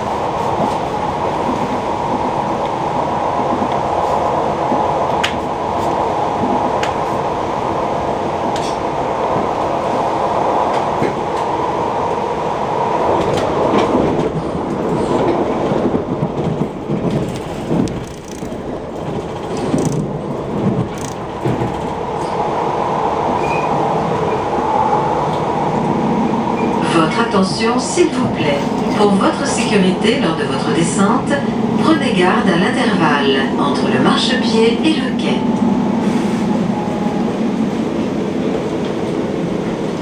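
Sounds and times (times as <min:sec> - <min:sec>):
train wheels rumbling on track: 0:00.0 - 0:40.0.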